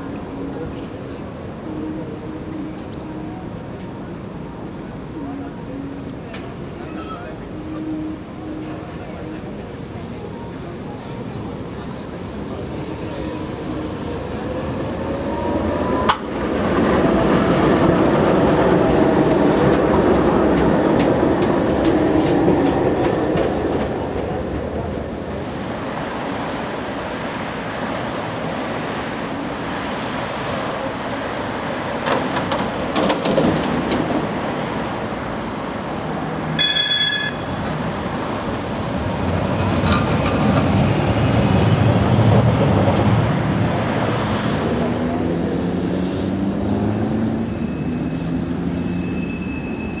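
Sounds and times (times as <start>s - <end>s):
tram running on street track: 0.0s - 50.0s
wheels clacking over rail joints: 31.8s - 35.1s
short high ringing tone: 36.6s - 41.9s.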